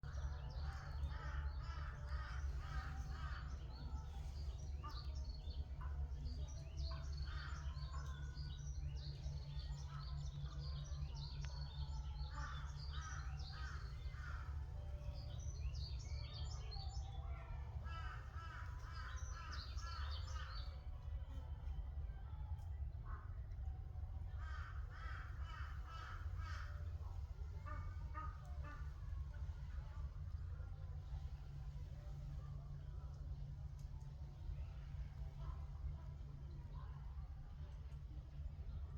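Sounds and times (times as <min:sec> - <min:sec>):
forest birds chirping: 0:00.0 - 0:38.9
crow-like caws: 0:12.4 - 0:14.6, 0:24.4 - 0:27.1.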